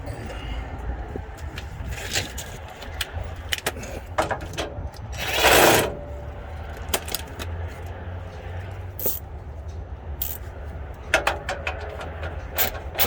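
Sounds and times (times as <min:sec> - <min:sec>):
hand tools clicking and clanking: 0:09.0 - 0:09.3, 0:10.2 - 0:10.5, 0:11.1 - 0:13.0.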